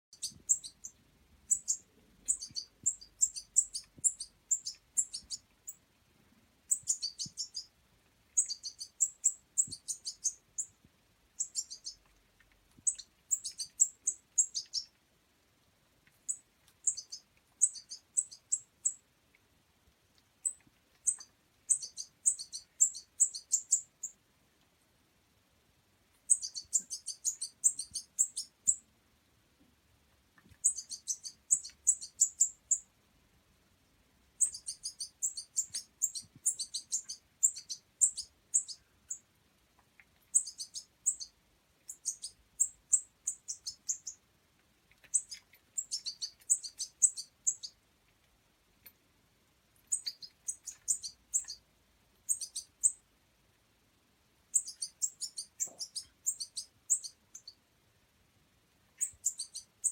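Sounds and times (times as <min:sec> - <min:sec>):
bird fledgling chirping: 0:00.1 - 0:05.8, 0:06.7 - 0:07.7, 0:08.4 - 0:10.7, 0:11.4 - 0:12.0, 0:12.8 - 0:14.9, 0:16.3 - 0:19.0, 0:20.4 - 0:24.2, 0:26.3 - 0:28.8, 0:30.6 - 0:32.8, 0:34.4 - 0:39.2, 0:40.3 - 0:41.3, 0:41.9 - 0:44.2, 0:45.1 - 0:47.8, 0:49.9 - 0:51.6, 0:52.3 - 0:53.0, 0:54.5 - 0:57.6, 0:59.0 - 0:59.9.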